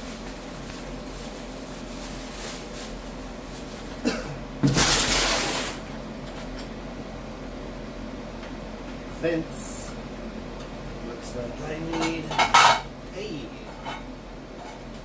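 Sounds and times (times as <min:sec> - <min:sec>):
loud clatter of parts: 0:04.6 - 0:05.9.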